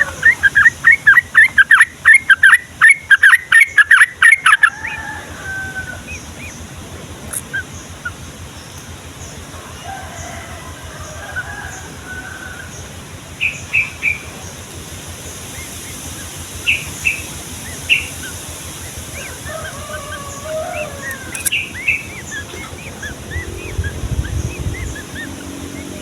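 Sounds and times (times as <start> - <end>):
bulbul singing: 0.0 - 26.0
background hiss: 5.4 - 26.0.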